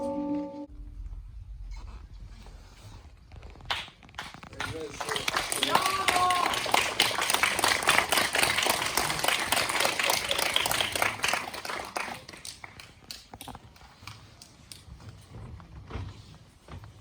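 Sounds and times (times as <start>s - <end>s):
audience applauding: 3.7s - 13.2s.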